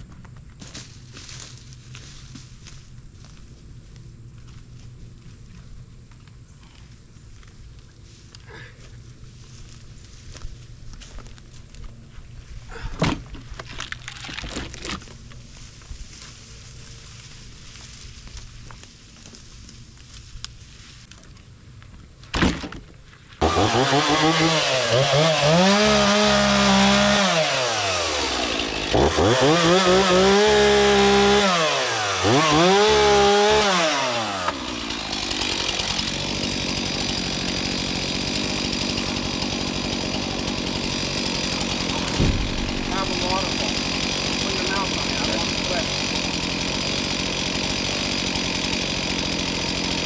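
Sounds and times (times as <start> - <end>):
chainsaw revving: 23.4 - 50.0.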